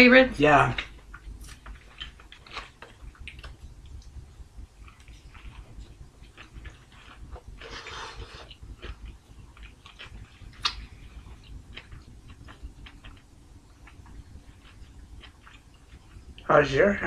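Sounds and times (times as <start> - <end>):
chewing food: 0.7 - 16.5
wet mouth smacks and clicks: 1.1 - 4.2, 9.6 - 10.9.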